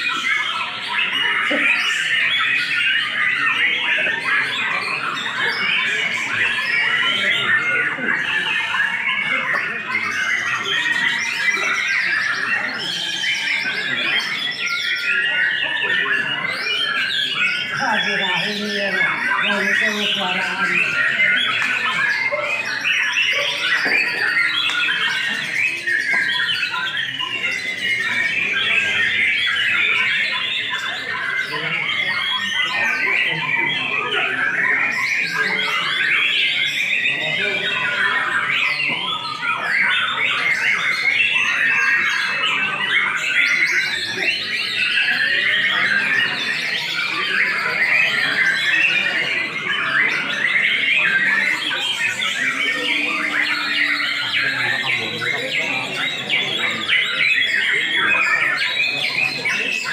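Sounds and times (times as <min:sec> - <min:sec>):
songbird whistling and chattering: 0:00.0 - 0:59.9.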